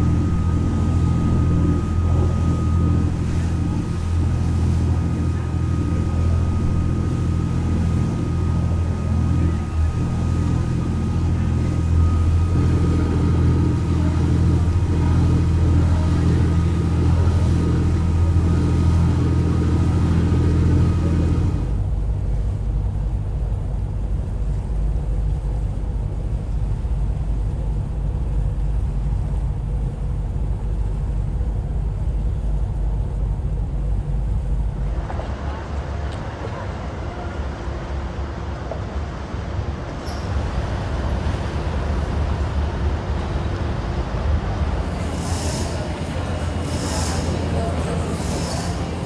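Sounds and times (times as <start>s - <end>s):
rough low rumble: 0.0s - 36.7s
low engine hum with tones: 0.0s - 49.0s.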